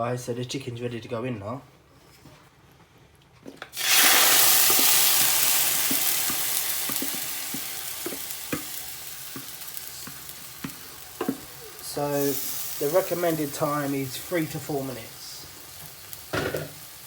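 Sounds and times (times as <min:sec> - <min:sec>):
chicken sizzling in a pan: 0:03.8 - 0:17.0.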